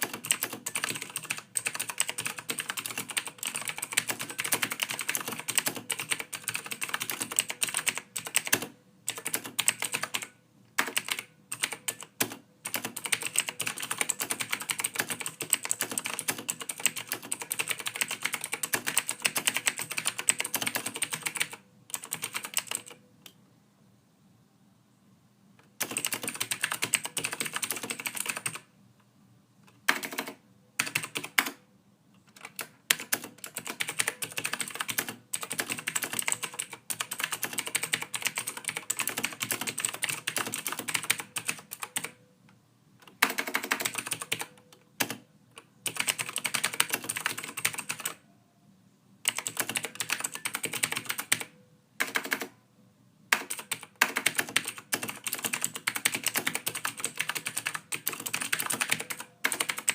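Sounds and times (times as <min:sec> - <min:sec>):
keyboard typing clicks: 0:00.0 - 0:23.4, 0:25.8 - 0:28.6, 0:29.6 - 0:31.6, 0:32.2 - 0:42.2, 0:43.0 - 0:48.2, 0:49.3 - 0:52.6, 0:53.3 - 0:59.9.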